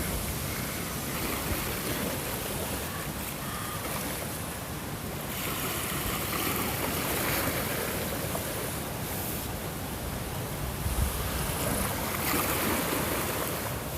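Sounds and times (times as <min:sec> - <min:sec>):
ocean waves surf: 0:00.0 - 0:13.9.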